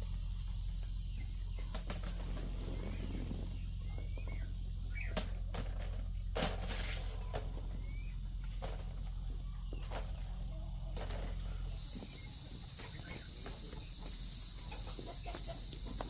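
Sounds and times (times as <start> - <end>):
insects droning: 0.0 - 16.0
bird chirps: 2.6 - 5.2.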